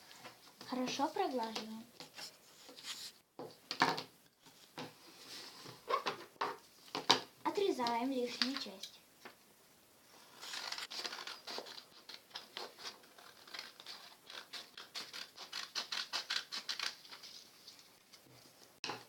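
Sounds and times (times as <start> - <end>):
paper rustling: 7.7 - 8.9, 10.2 - 18.7
scissors snipping paper: 10.4 - 17.4.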